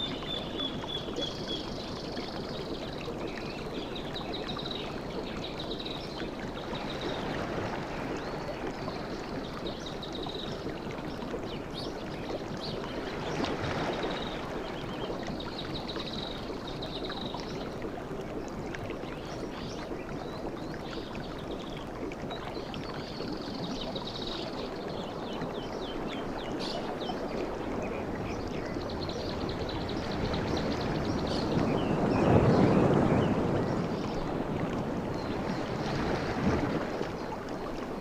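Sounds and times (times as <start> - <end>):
waves washing on a beach: 27.2 - 38.0.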